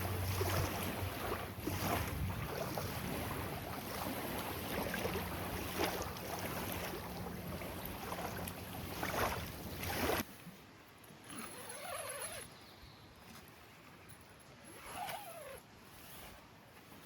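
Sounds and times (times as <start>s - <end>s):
lakeside water: 0.0s - 17.0s.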